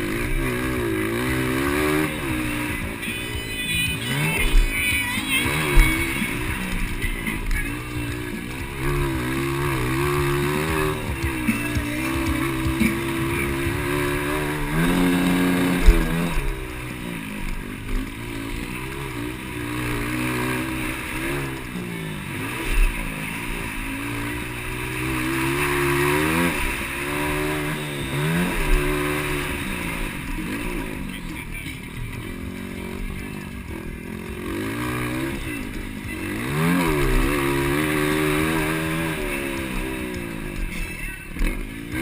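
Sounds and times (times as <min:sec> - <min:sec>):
motocross bike engines revving: 0:00.0 - 0:42.0.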